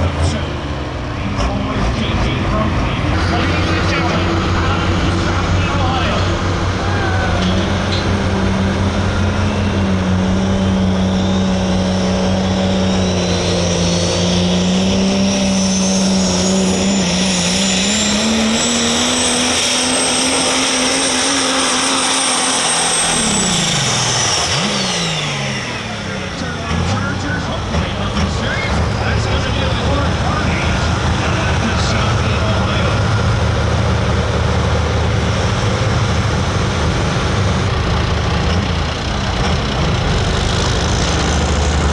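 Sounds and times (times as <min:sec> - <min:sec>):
diesel truck engine under load: 0:00.0 - 0:41.9
turbocharger whistle: 0:10.7 - 0:33.0.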